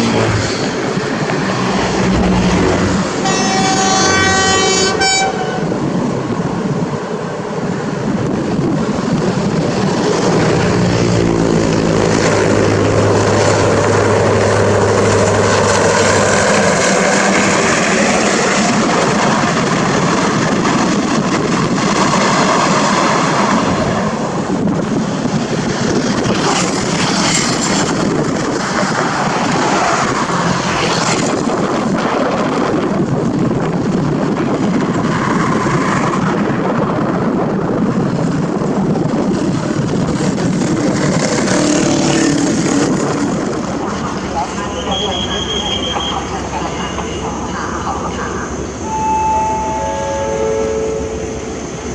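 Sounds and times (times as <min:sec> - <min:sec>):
diesel train rumbling past: 0:00.0 - 0:51.9.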